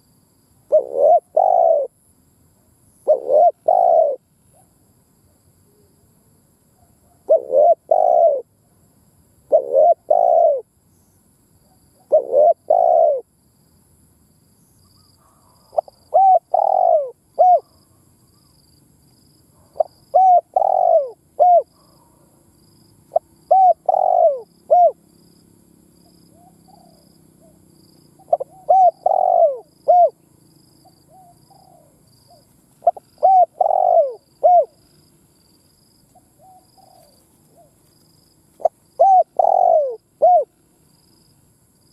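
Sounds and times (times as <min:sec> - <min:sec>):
dove cooing: 0:00.7 - 0:01.9, 0:03.0 - 0:04.7, 0:07.1 - 0:08.5, 0:09.5 - 0:10.7, 0:12.0 - 0:13.3, 0:15.2 - 0:18.5, 0:19.6 - 0:22.4, 0:23.1 - 0:25.1, 0:26.3 - 0:30.3, 0:30.9 - 0:35.0, 0:36.2 - 0:37.8, 0:38.5 - 0:40.6.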